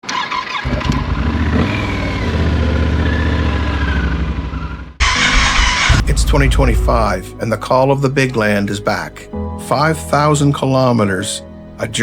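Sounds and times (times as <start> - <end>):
motorcycle engine running: 0.7 - 7.2
loud rushing noise: 5.0 - 7.4.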